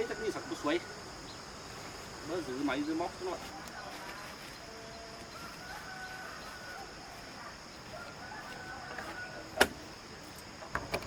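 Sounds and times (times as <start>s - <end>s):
faint rooster crowing: 0.0s - 1.1s, 3.5s - 9.7s
high insect buzz: 0.0s - 11.0s.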